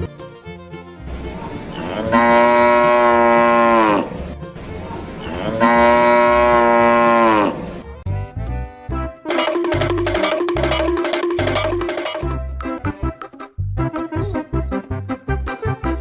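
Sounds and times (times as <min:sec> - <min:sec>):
cow mooing: 0:01.8 - 0:04.2, 0:05.2 - 0:07.7.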